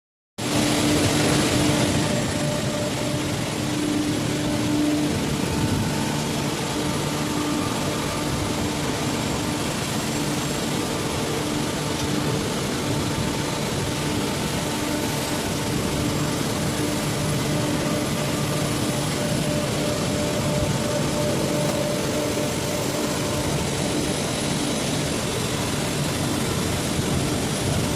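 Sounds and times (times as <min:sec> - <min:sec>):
vehicle engine drone: 0:00.4 - 0:27.9.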